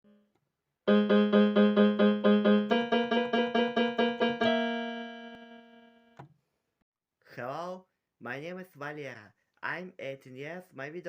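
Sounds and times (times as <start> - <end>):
keyboard playing repeated chords: 0.0 - 6.3.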